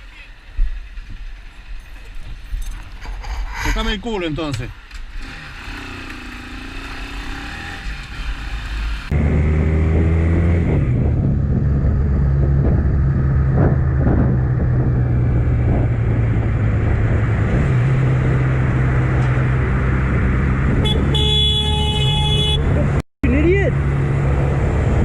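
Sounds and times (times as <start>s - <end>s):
road noise: 0.0s - 25.0s
car horn: 20.8s - 22.9s.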